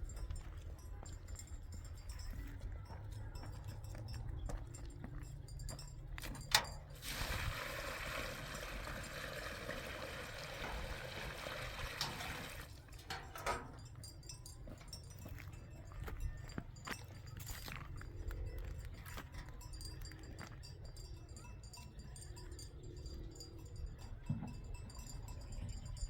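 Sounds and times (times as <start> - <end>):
water pouring: 7.0 - 12.7.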